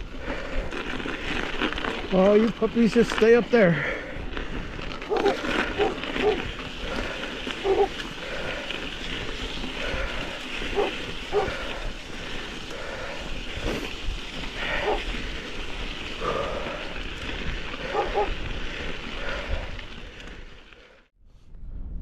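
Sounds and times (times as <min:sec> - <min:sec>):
dogs barking: 0:05.1 - 0:06.5, 0:07.6 - 0:08.0, 0:10.7 - 0:11.8, 0:14.6 - 0:15.1, 0:17.8 - 0:18.4
wind on microphone: 0:13.2 - 0:20.5, 0:21.2 - 0:22.0.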